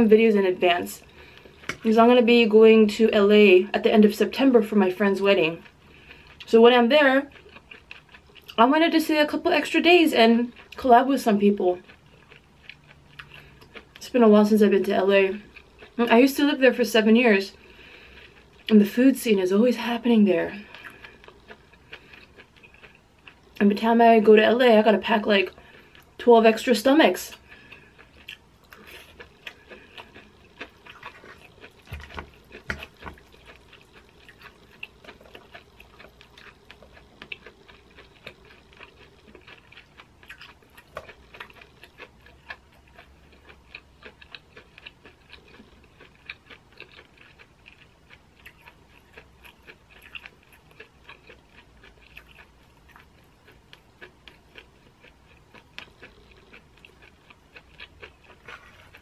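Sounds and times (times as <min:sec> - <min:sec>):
wet mouth clicks chewing: 0:27.6 - 0:59.0.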